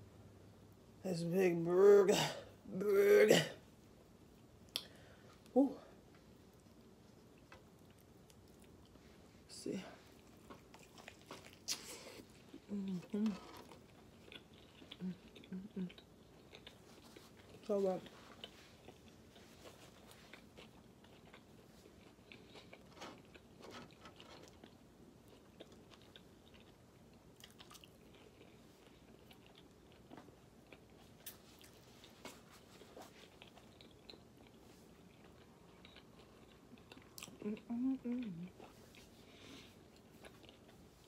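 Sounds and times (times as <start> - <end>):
chewing with mouth clicks: 6.2 - 9.3, 10.0 - 41.0.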